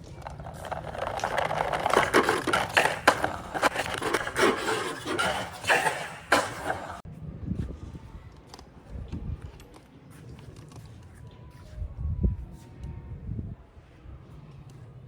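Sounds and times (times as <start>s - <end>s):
toy tractor rolling and scraping: 0.0s - 7.0s.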